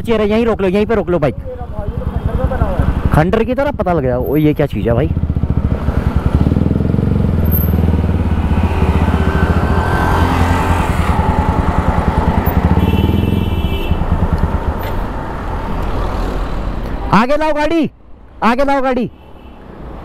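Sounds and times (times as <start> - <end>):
motorcycle engine idling: 0.8 - 8.4.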